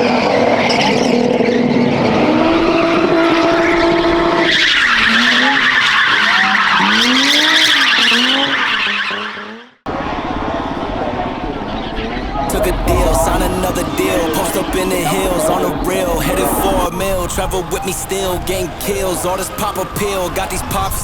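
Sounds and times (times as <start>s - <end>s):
car engine at high revs: 0.0s - 9.7s
tyres spinning and squealing: 0.0s - 9.8s, 11.8s - 21.0s.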